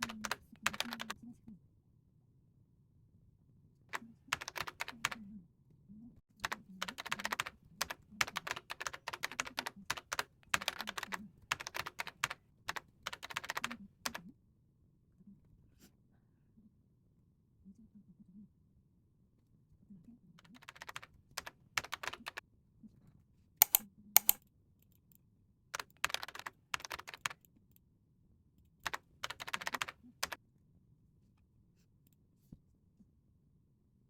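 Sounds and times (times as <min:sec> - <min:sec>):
keyboard key clicks: 0:23.6 - 0:24.4.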